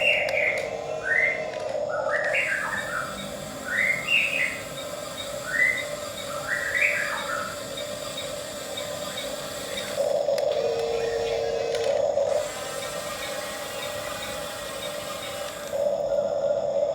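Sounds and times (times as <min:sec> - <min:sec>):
bird chirping: 0:00.0 - 0:10.0
small electric motor hum: 0:00.0 - 0:16.9.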